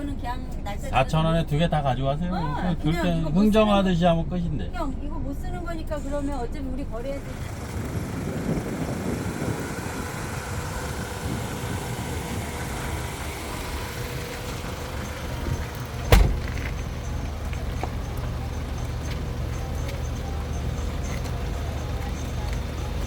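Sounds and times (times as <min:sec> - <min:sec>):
vehicle engine rumbling: 0:00.0 - 0:23.0
sharp loud thump: 0:16.0 - 0:17.0.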